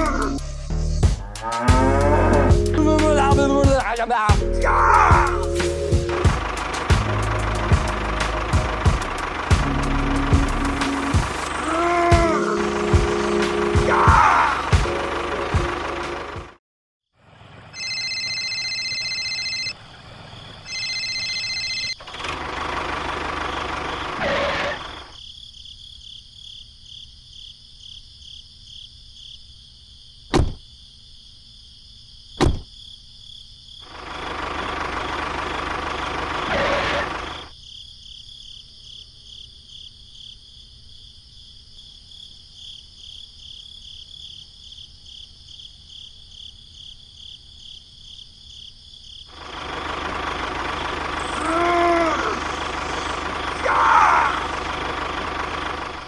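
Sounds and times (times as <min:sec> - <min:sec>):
loud noisy stretches: 0:51.2 - 0:55.4.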